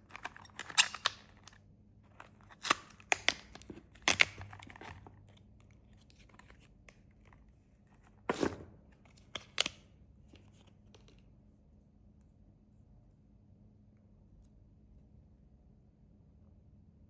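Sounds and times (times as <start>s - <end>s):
plastic wrappers tearing and crinkling: 2.4s - 5.1s.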